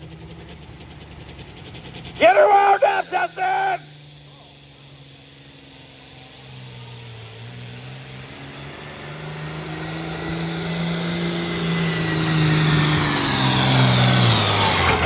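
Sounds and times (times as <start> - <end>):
tractor engine running under load: 11.2 - 15.0.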